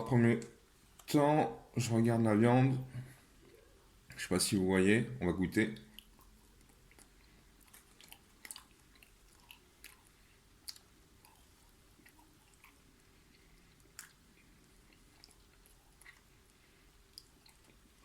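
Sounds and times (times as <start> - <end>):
close-up chewing: 5.8 - 18.0.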